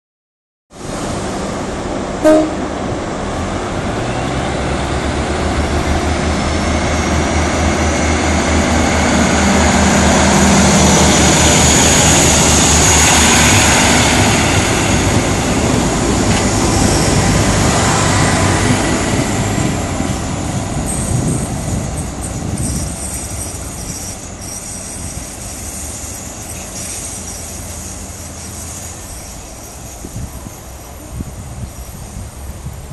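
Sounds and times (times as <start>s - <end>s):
diesel railcar engine throbbing: 0.9s - 32.9s.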